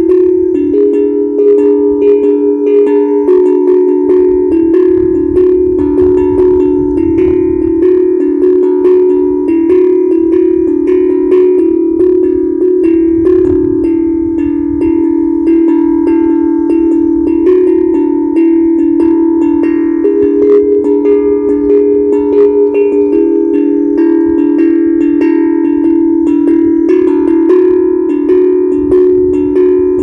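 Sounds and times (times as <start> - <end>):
steel tongue drum ringing: 0.0 - 30.0.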